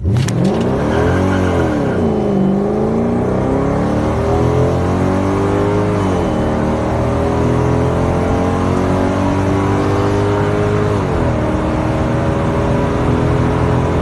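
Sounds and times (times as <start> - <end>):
car engine revving at full throttle: 0.0 - 14.0.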